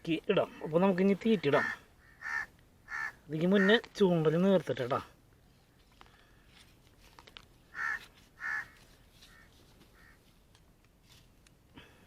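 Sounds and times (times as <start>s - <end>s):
crow cawing: 1.4s - 3.8s, 7.7s - 10.2s.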